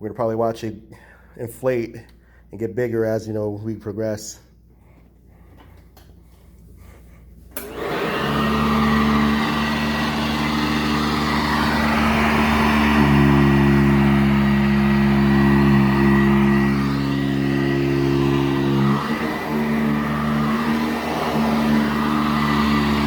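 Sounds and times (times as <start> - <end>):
vacuum switch click: 7.5 - 8.0
vacuum motor whine: 7.5 - 23.0.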